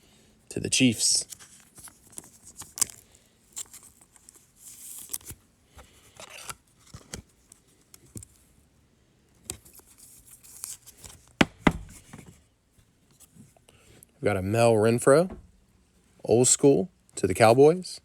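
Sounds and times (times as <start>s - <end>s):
cards being handled: 1.2s - 8.5s, 9.4s - 12.4s.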